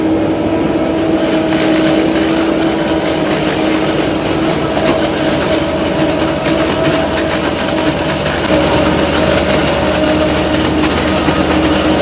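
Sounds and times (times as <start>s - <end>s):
harvesting machine engine drone: 0.0s - 12.0s
continuous fine clatter: 1.0s - 12.0s.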